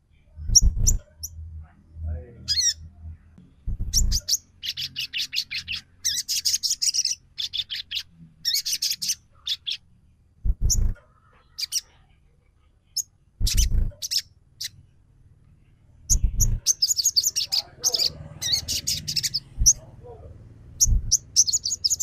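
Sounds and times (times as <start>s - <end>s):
rattling bird chirps: 0.4s - 1.4s, 2.5s - 2.8s, 3.7s - 9.8s, 10.6s - 11.9s, 13.4s - 14.8s, 16.1s - 19.9s, 20.8s - 22.0s
harsh bird calls: 2.3s - 3.0s, 3.8s - 9.9s, 10.6s - 12.1s, 13.0s - 14.8s, 16.1s - 22.0s.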